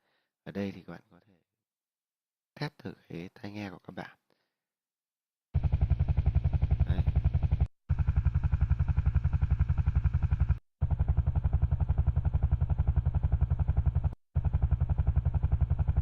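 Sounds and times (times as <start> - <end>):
low pulsing rumble: 5.6 - 16.0.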